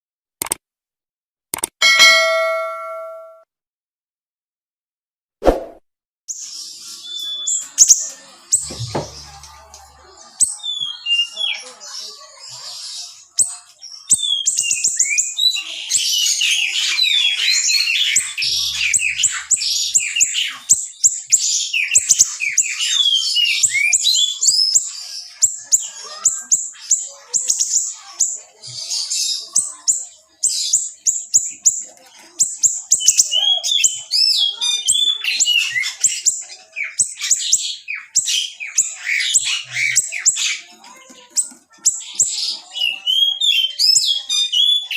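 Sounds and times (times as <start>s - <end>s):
songbird singing fast chirps: 6.3s - 9.5s, 10.3s - 40.7s.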